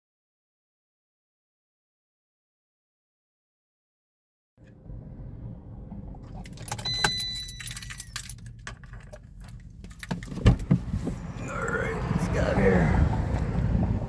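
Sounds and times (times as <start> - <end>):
low steady rumble: 4.6 - 14.0
keys jangling: 6.4 - 10.5
short beep: 6.8 - 7.8.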